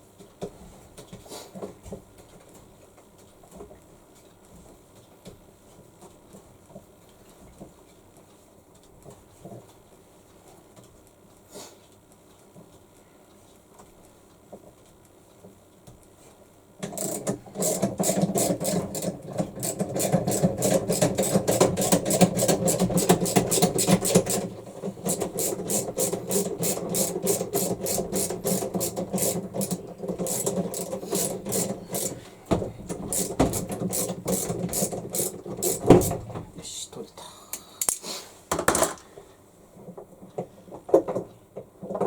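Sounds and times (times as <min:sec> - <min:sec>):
ratchet wrench clicking: 0:16.9 - 0:24.5, 0:25.1 - 0:32.2, 0:33.1 - 0:36.2.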